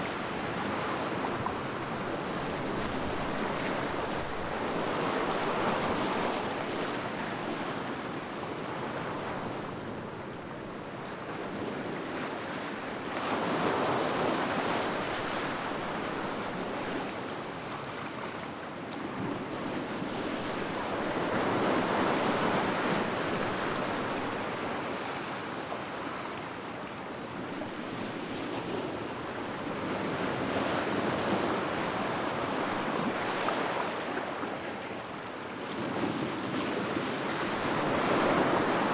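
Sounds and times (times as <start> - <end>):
sea waves breaking on shore: 35.6 - 38.9.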